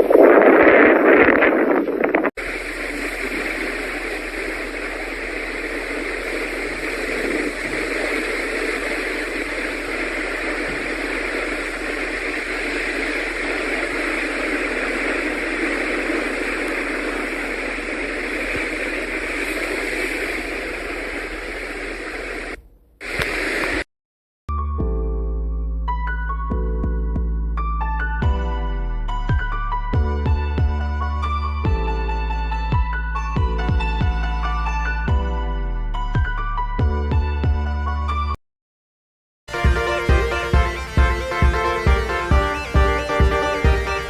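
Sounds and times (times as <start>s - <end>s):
steady rushing noise: 0.0s - 23.9s, 39.5s - 44.0s.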